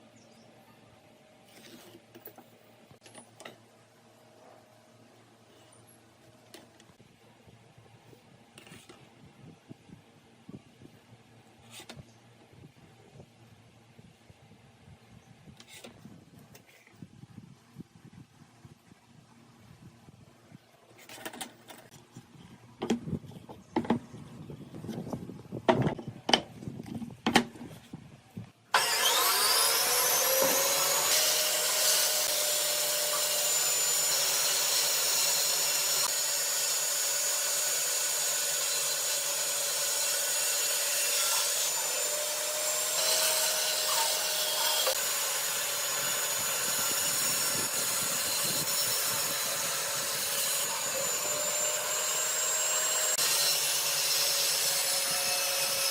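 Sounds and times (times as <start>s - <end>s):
power tool whining on wood: 28.8s - 55.9s.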